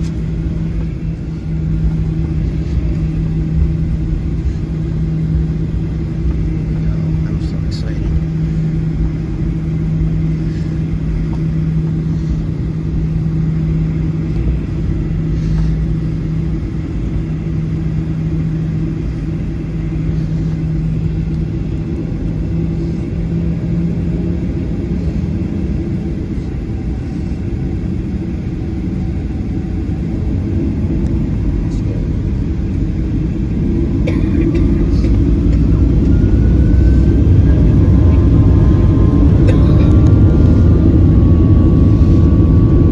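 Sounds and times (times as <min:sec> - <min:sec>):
jet engine rising whine: 0:00.0 - 0:42.9
jet engines humming in cabin: 0:00.0 - 0:42.9.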